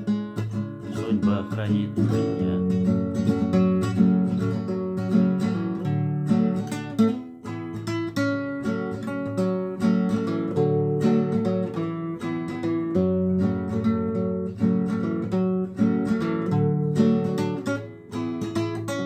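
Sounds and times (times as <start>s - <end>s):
acoustic guitar strumming chords: 0.0s - 19.0s
person singing: 0.8s - 3.4s.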